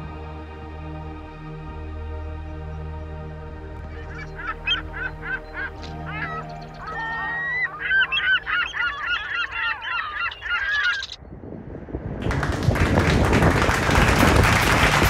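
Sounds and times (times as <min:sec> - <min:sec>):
geese honking: 0:03.7 - 0:11.2
loud even noise: 0:10.8 - 0:15.0.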